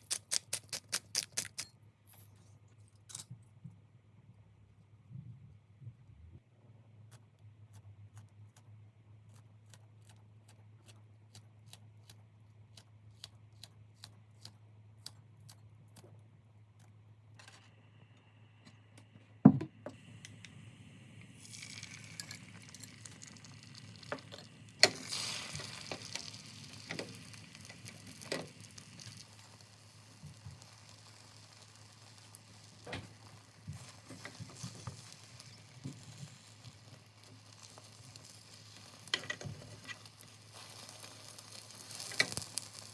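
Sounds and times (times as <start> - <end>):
food sizzling in a pan: 20.0 - 42.9
utensils clinking: 21.7 - 23.2.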